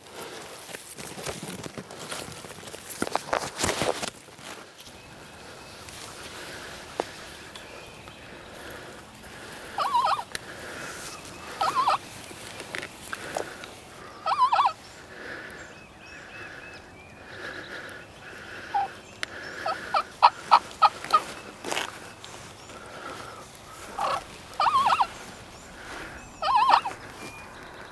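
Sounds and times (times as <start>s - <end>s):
turkey gobbling: 9.4s - 12.2s, 14.2s - 14.8s, 18.4s - 22.0s, 23.0s - 27.3s
short sharp turkey calls: 9.7s - 12.0s, 14.2s - 14.8s, 18.6s - 22.0s, 23.2s - 27.2s.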